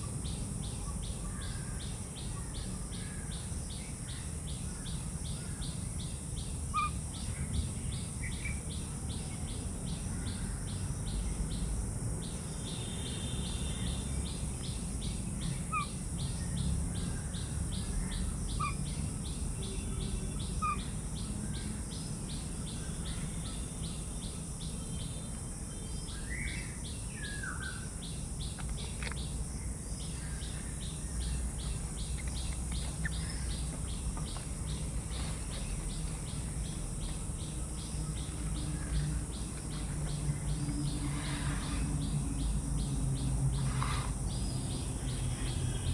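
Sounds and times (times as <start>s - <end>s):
insect calling in rapid pulses: 0.2s - 8.8s, 12.6s - 24.7s, 26.0s - 45.9s.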